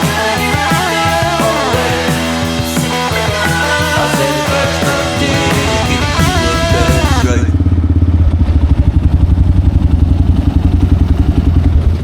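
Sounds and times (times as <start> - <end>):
rock music: 0.0 - 7.7
motorcycle engine rumbling: 0.0 - 12.0.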